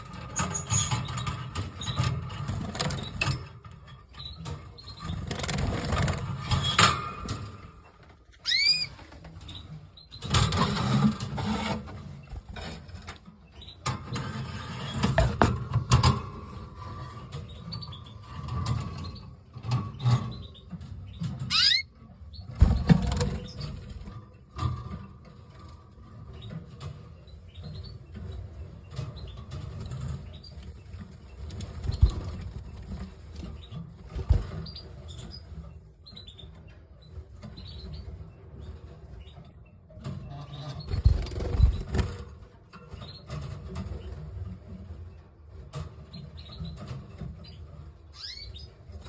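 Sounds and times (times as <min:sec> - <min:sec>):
rustling and bumping: 0:13.9 - 0:16.8, 0:31.0 - 0:35.2
canary call notes: 0:21.5 - 0:21.9.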